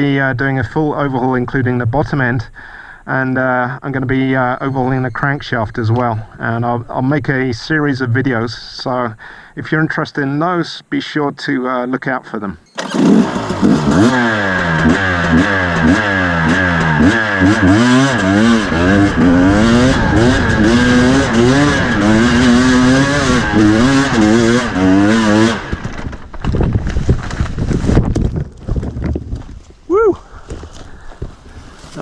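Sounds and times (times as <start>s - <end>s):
dirt bike engine revving: 12.8s - 26.4s.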